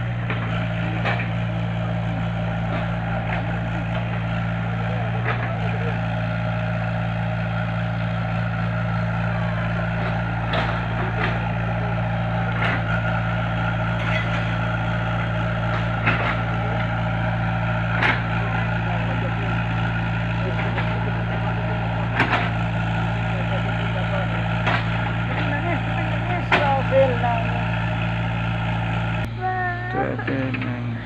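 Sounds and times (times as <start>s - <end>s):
heavy machine engine running: 0.0s - 31.0s
sharp knocks and clanks: 10.0s - 11.6s, 12.5s - 13.1s, 13.9s - 16.9s, 17.9s - 18.9s, 22.1s - 22.8s, 24.5s - 26.9s.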